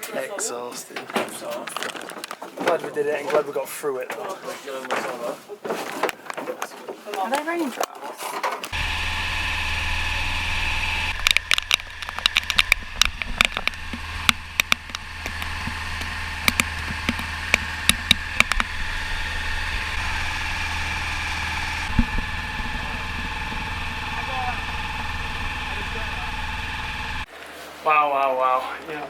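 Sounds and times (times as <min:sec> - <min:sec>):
engine droning: 0:08.7 - 0:27.3
raindrops hitting camera: 0:11.1 - 0:25.6.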